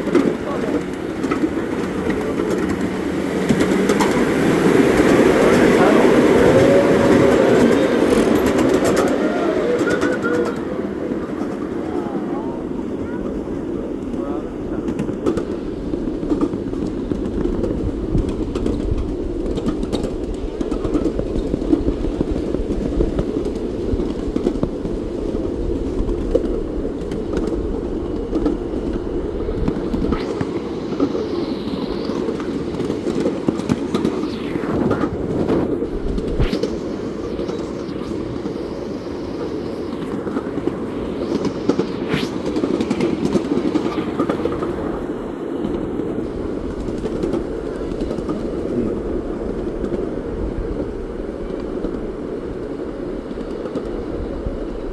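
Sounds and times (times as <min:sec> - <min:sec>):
train rumbling on rails: 0:00.0 - 0:54.9.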